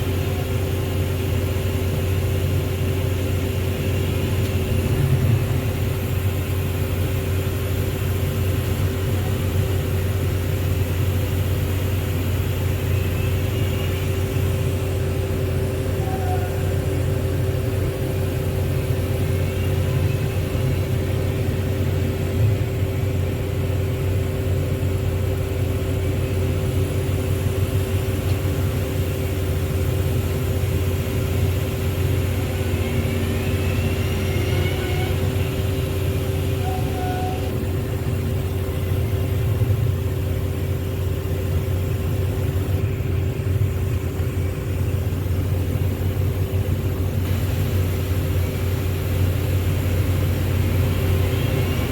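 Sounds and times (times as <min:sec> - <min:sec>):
heavy diesel engine running: 0:00.0 - 0:51.9.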